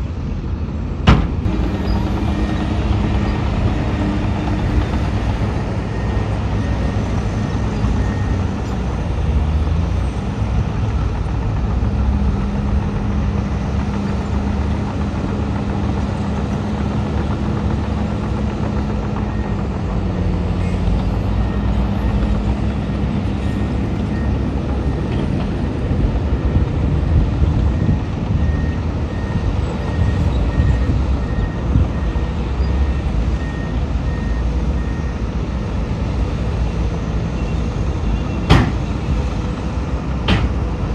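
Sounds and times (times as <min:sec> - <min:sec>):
heavy diesel machinery running: 0:00.0 - 0:40.9
reversing alarm beeping: 0:01.5 - 0:08.7.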